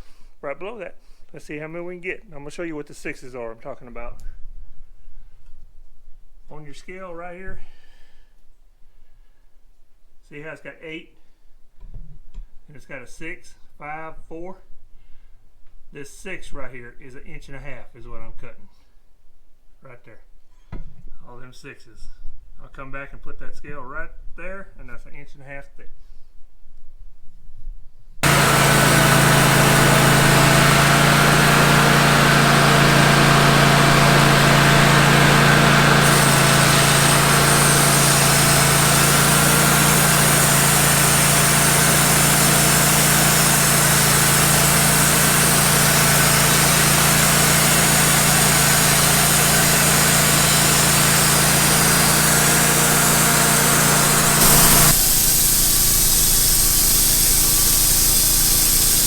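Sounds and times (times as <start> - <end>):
band blade hissing through log: 28.2 - 59.0
sawmill engine humming: 28.2 - 59.0.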